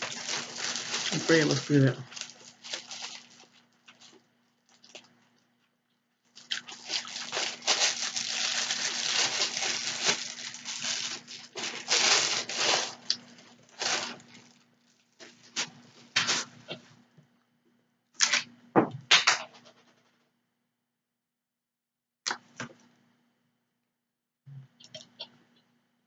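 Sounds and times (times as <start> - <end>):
crinkling and rustling: 0.0 - 5.7, 6.3 - 16.9.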